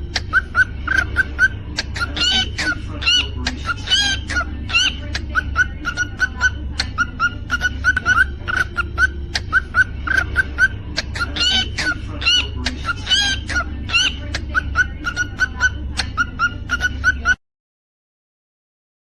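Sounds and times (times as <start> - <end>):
steady low hum: 0.0 - 17.4
cockatiel chirping: 0.1 - 17.4.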